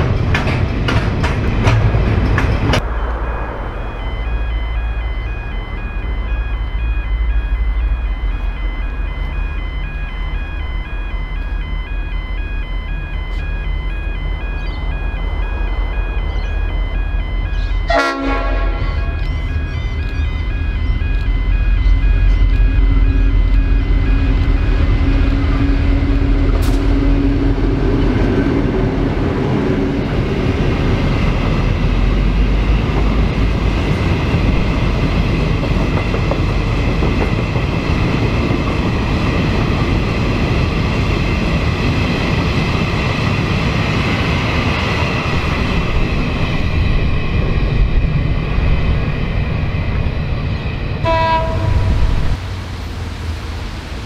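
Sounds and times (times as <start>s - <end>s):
locomotive engine drone: 0.0s - 54.0s
wagons rumbling on rails: 0.0s - 54.0s
brief tone: 2.8s - 26.2s.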